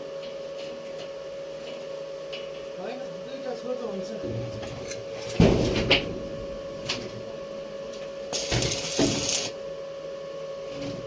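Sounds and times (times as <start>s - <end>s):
steady hum: 6.2s - 10.2s
metal pieces clanking: 8.4s - 9.5s
harsh hiss: 8.4s - 9.6s.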